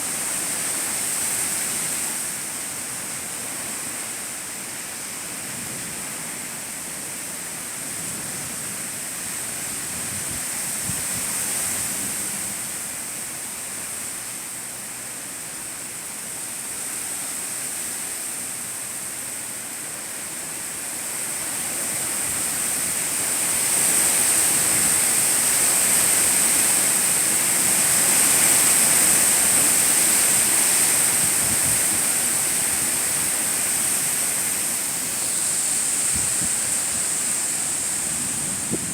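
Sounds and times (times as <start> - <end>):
strong wind rushing: 36.0 - 38.9.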